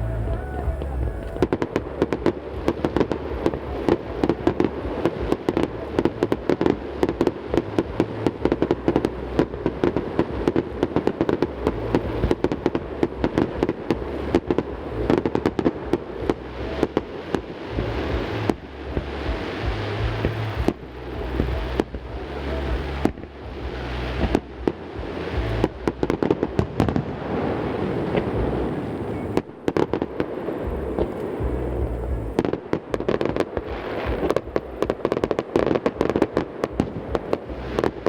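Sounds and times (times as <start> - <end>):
fireworks crackling: 0.0 - 38.0
rumble of explosions echoing: 0.0 - 38.0.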